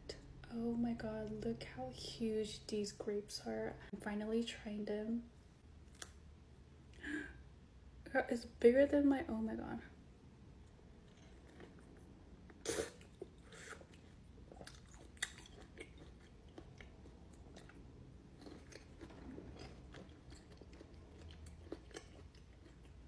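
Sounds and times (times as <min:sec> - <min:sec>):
soft wet chewing: 0:05.8 - 0:06.2, 0:10.6 - 0:23.0.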